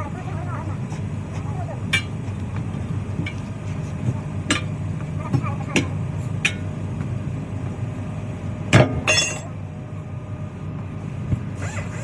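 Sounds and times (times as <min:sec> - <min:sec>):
low mechanical hum: 0:00.0 - 0:12.0
ringing metal clink: 0:09.1 - 0:09.5.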